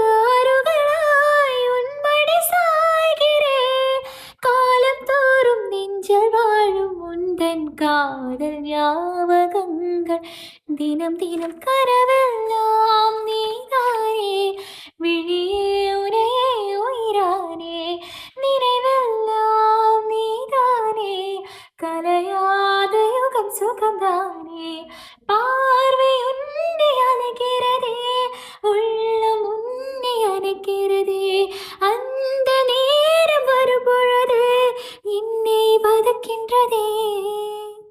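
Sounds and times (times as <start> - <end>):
woman singing unaccompanied: 0.0 - 37.9
singer breathing: 4.0 - 4.4, 10.2 - 10.6, 14.6 - 15.0, 18.0 - 18.4, 21.4 - 21.8, 24.9 - 25.2, 28.3 - 28.6, 31.5 - 31.8, 34.8 - 35.0.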